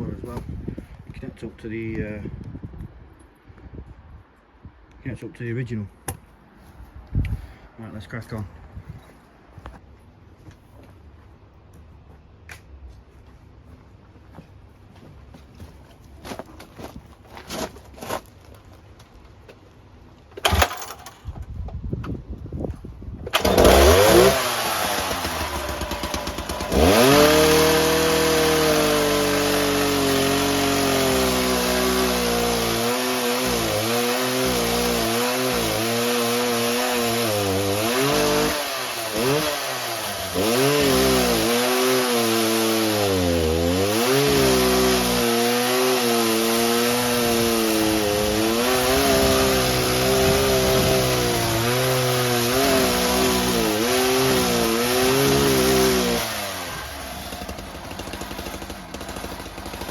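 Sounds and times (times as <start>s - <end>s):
cut-off saw cutting pipe: 23.4s - 59.9s.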